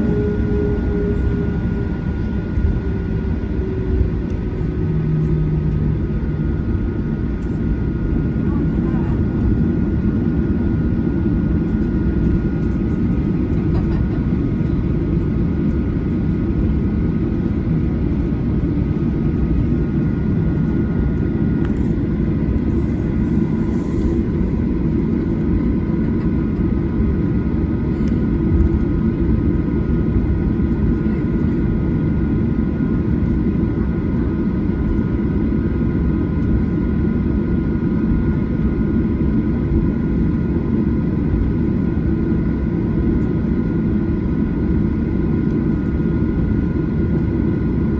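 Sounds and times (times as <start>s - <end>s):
jet engine whining tones: 0.0s - 28.8s
airplane cabin rumble: 0.0s - 47.9s.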